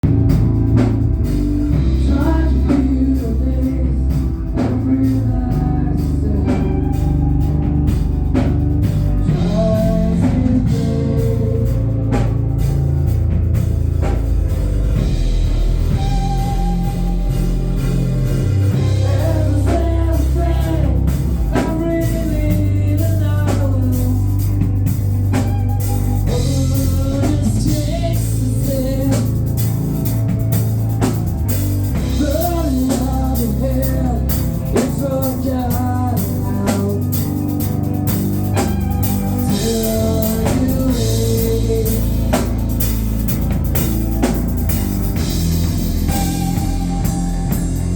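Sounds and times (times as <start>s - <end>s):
rock band playing: 0.0s - 47.9s
person singing: 1.7s - 12.4s, 15.5s - 43.0s.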